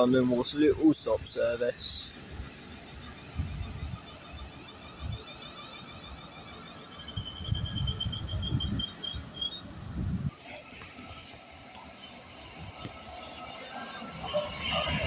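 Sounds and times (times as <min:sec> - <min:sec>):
wind buffeting microphone: 0:02.3 - 0:05.4, 0:07.0 - 0:11.3, 0:12.3 - 0:15.0.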